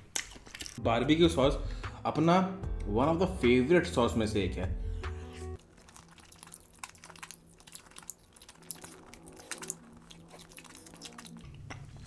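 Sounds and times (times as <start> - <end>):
chewing and biting chicken: 5.6 - 12.0.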